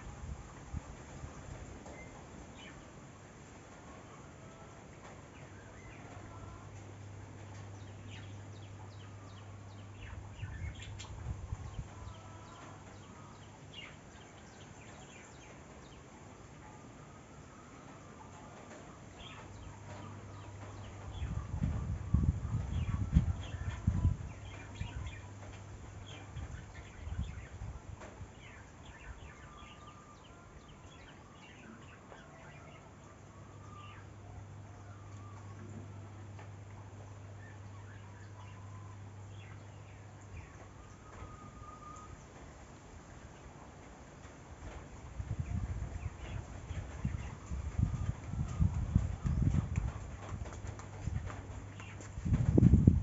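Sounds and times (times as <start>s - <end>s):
small birds chirping: 3.9s - 43.8s, 44.8s - 53.0s.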